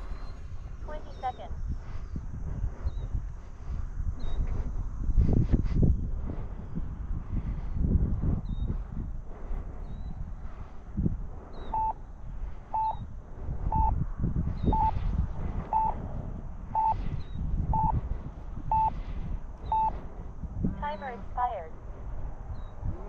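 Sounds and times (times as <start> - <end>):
wind on microphone: 0.0 - 23.0
transmitter timer beeping: 11.7 - 12.0, 12.7 - 13.1, 13.7 - 14.0, 14.7 - 15.0, 15.7 - 16.0, 16.7 - 17.0, 17.7 - 18.0, 18.7 - 19.0, 19.6 - 20.0.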